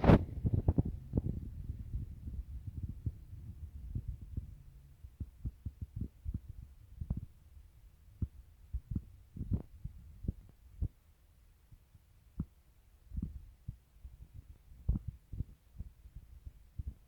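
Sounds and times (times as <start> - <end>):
dull low thumps: 0.0 - 7.4
faint low rumble: 0.0 - 17.0.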